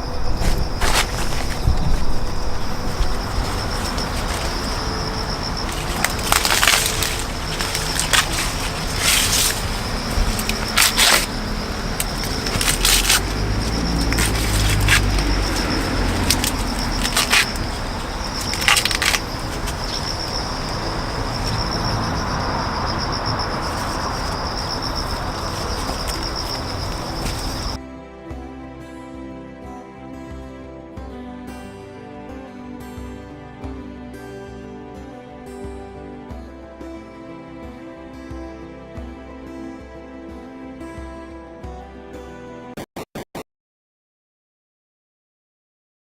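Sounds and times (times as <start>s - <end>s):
high-pitched insect drone: 0.0s - 27.8s
rustling: 0.1s - 27.8s.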